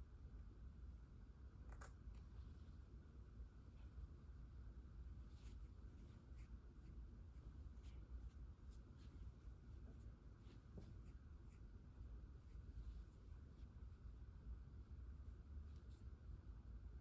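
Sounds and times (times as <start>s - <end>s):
low background hum: 0.0s - 17.0s
light scratches: 5.1s - 14.2s, 15.0s - 16.2s.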